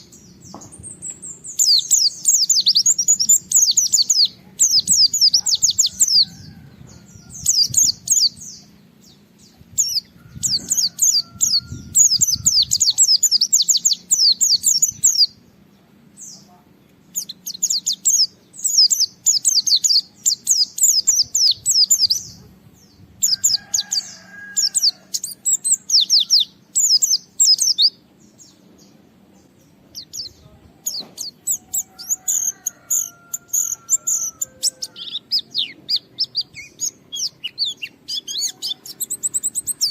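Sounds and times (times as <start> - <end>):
bird high twittering: 9.7 - 15.4, 30.0 - 39.9.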